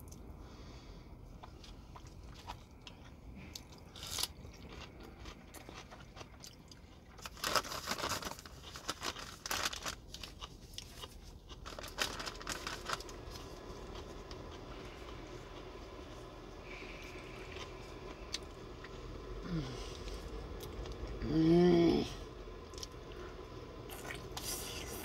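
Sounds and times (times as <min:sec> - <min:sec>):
person chewing and crunching food: 0:01.3 - 0:21.2, 0:22.6 - 0:25.0
rustling: 0:07.2 - 0:13.8.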